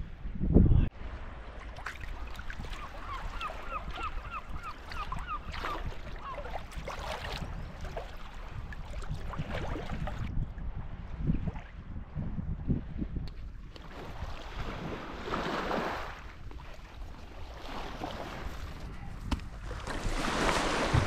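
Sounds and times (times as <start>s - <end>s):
birds calling: 2.7s - 6.5s.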